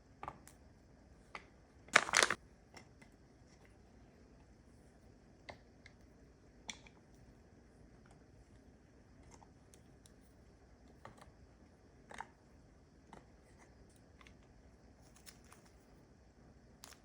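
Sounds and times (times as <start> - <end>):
small objects clicking and tapping: 1.4 - 2.4.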